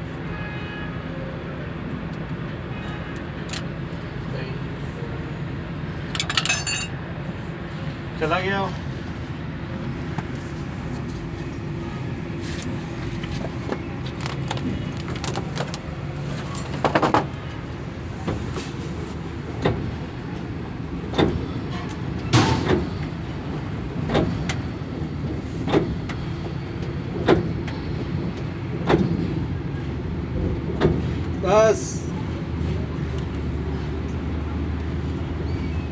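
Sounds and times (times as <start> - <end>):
steady mechanical hum: 1.5 - 35.9
ringing metallic clink: 6.2 - 6.9.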